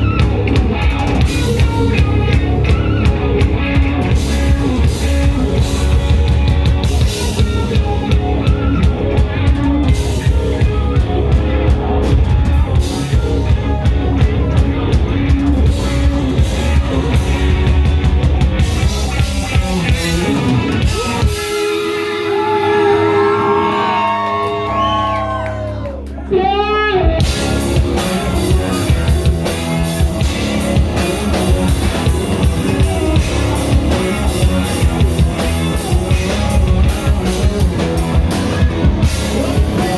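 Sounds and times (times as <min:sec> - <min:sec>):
bass guitar: 0:00.0 - 0:39.9
drums: 0:00.0 - 0:39.9
electric guitar: 0:00.0 - 0:39.9
live rock band playing: 0:00.0 - 0:39.9
sliding bending guitar notes: 0:26.3 - 0:39.9.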